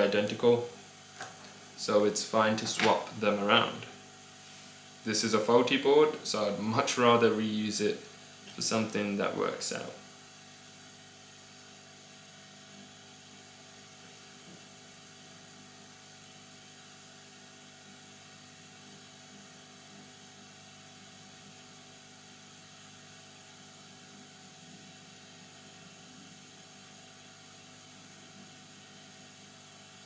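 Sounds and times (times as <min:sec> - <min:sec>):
fan whirring: 0:00.0 - 0:10.0
electrical hum: 0:00.0 - 0:18.1.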